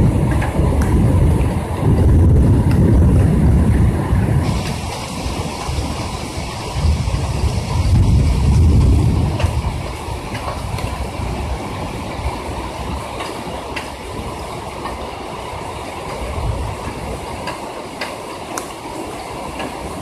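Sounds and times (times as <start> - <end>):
thunder rumble: 0.0 - 17.5
heavy rain drumming: 0.0 - 20.0
raindrop taps: 0.2 - 3.7, 8.6 - 11.1, 16.0 - 18.8.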